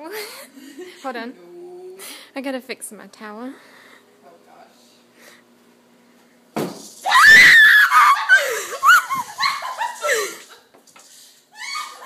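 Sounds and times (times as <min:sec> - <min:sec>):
woman screaming: 0:07.1 - 0:10.0, 0:11.6 - 0:12.0.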